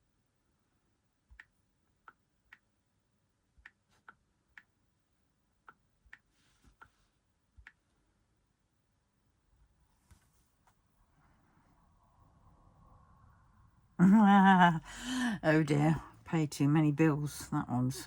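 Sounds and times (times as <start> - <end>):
soft rustle: 6.3 - 7.2, 9.8 - 11.7.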